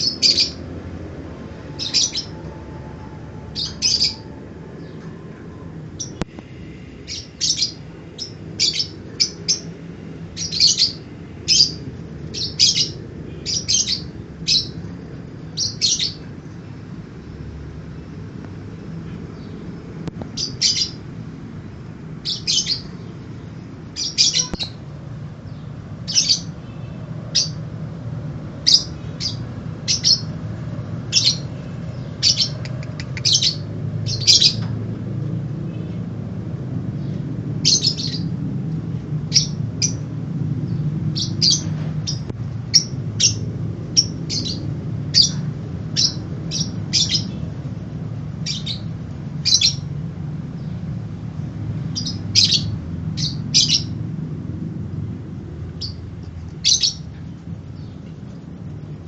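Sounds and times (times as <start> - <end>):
lovebird chirping: 0.0 - 0.6, 1.6 - 2.5, 3.5 - 5.2, 7.1 - 9.8, 10.4 - 14.8, 22.2 - 23.2, 23.9 - 24.8, 31.1 - 34.7, 40.7 - 47.5, 48.4 - 49.9, 56.6 - 57.2.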